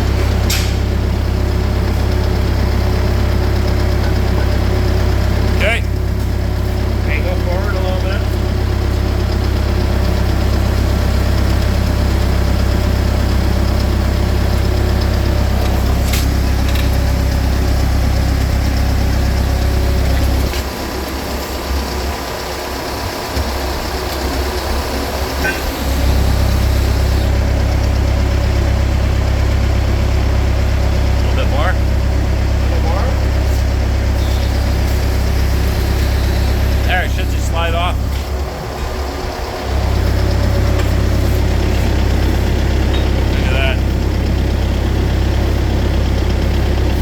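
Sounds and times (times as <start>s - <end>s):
skid steer engine idling: 0.0s - 47.0s.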